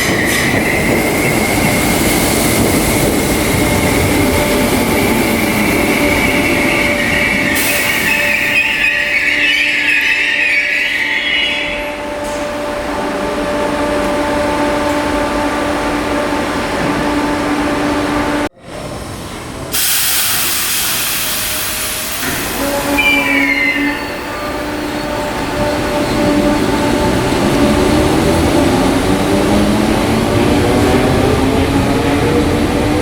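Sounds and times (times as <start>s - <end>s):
electric train equipment humming: 0.0s - 33.0s
loud hiss: 19.7s - 22.8s
short squeal: 22.2s - 25.2s.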